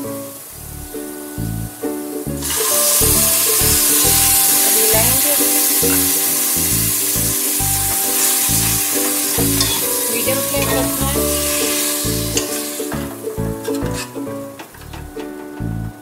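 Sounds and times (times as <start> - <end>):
background music: 0.0 - 16.0
lentils sizzling in oil: 2.0 - 14.5
ladle stirring in pot: 8.0 - 14.9.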